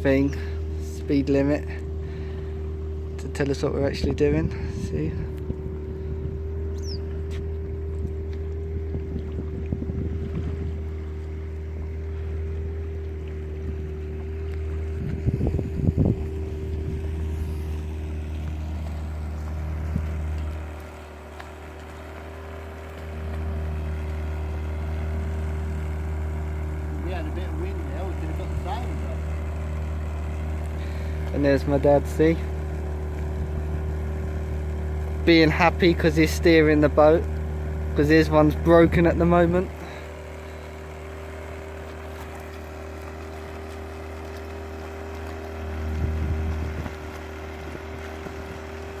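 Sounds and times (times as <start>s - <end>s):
loud low rumble: 0.0s - 21.1s
outboard motor droning: 0.0s - 49.0s.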